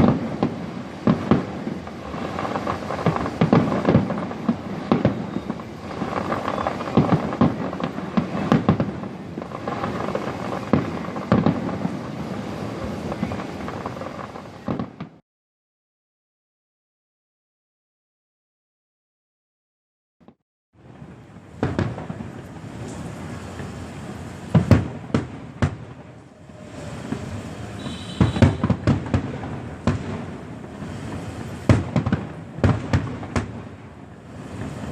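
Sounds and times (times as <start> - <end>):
fireworks crackle: 0.0 - 15.2, 20.8 - 34.9.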